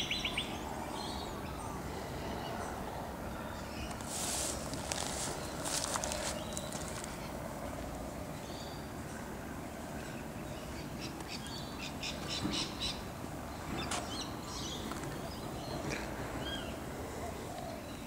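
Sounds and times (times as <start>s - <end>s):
birds chirping: 0.0s - 9.0s
low background noise: 0.0s - 18.0s.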